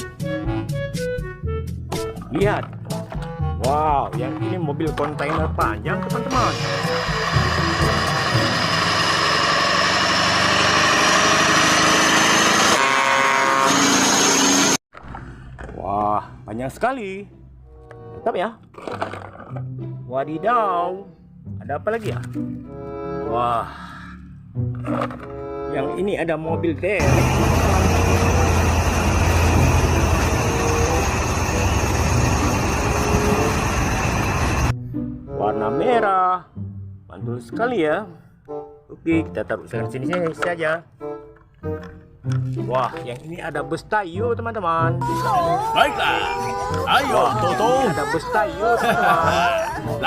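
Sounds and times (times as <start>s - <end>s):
engine running: 6.1s - 15.2s, 27.0s - 34.7s
hissing noise: 6.3s - 12.6s, 27.0s - 34.7s
buzzing hum: 6.3s - 14.8s, 27.0s - 34.7s
high whine falling in pitch: 27.0s - 34.7s.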